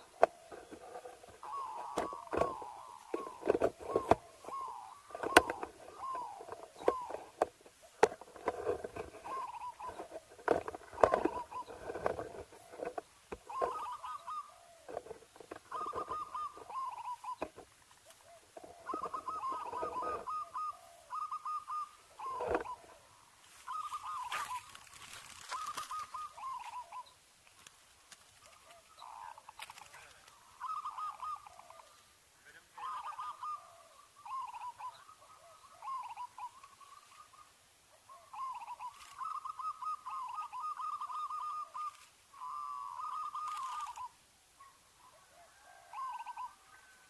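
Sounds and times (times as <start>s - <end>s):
dove cooing: 0.0s - 27.7s, 28.4s - 47.0s
handling clicks and rustling: 0.2s - 13.8s.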